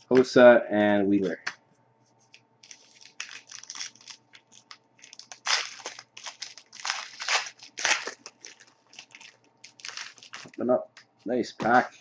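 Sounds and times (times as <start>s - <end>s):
card pack wrapper crinkling: 2.6s - 10.7s.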